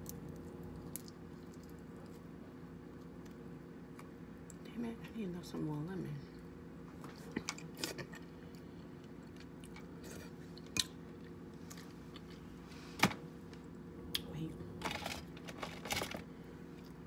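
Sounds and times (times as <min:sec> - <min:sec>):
crab shell cracking: 0:00.0 - 0:02.0
chewing and wet mouth sounds: 0:00.0 - 0:04.7, 0:06.3 - 0:12.4.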